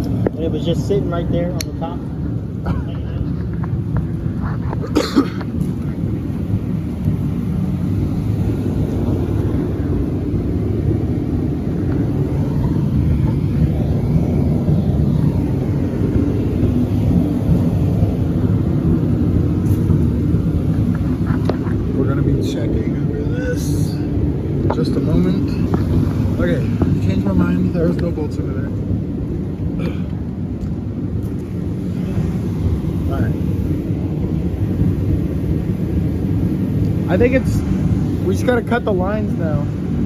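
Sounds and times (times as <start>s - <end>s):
vehicle engine rumbling: 0.0s - 40.0s.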